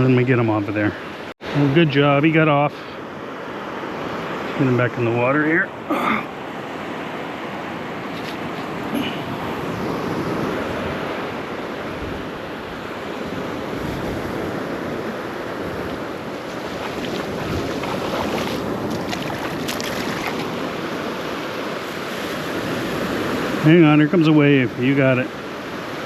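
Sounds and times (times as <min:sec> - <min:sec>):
surf breaking on beach: 0:06.9 - 0:24.8
wind buffeting microphone: 0:07.8 - 0:23.6.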